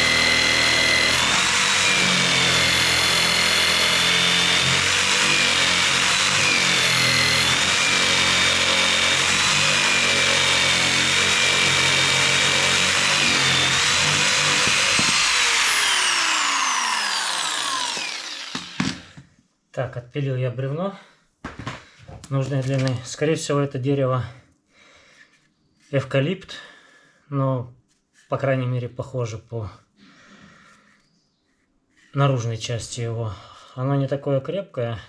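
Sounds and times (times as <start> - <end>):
electric jigsaw sawing log: 0.0 - 19.2
saw winding down: 0.0 - 19.2.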